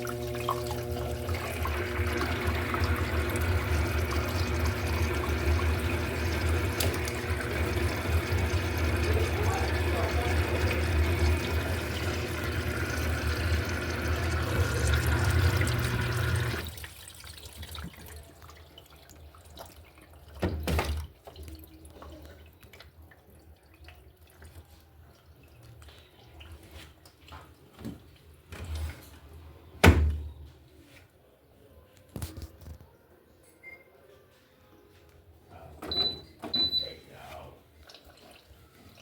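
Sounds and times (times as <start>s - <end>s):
washing machine filling with water: 0.0s - 29.3s, 35.8s - 39.0s
faint drips: 21.0s - 28.4s, 36.8s - 39.0s.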